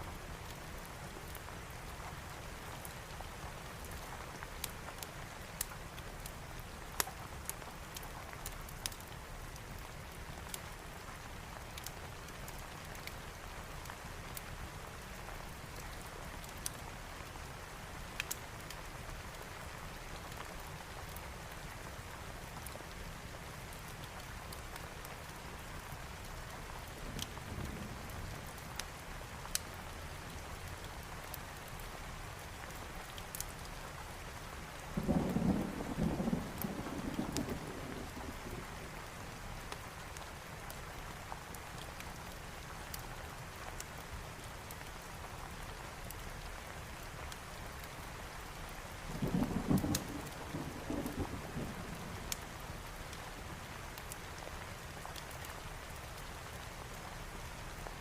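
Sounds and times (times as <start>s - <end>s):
heavy rain: 0.0s - 58.0s
rolling thunder rumble: 35.0s - 38.8s, 49.1s - 52.3s
sharp crackles: 49.7s - 53.3s.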